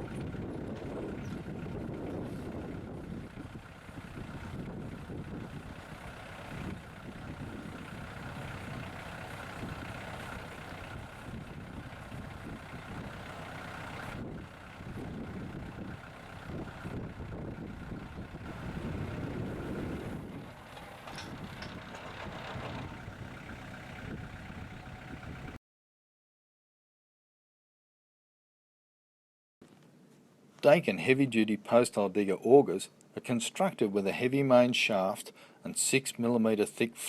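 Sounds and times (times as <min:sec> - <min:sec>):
tractor engine running: 0:00.0 - 0:25.6
auger boring into ground: 0:18.4 - 0:25.1.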